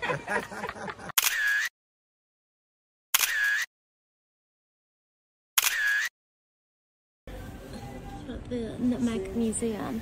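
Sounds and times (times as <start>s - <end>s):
camera shutter clicking: 1.2s - 1.7s, 3.2s - 3.7s, 5.6s - 6.1s.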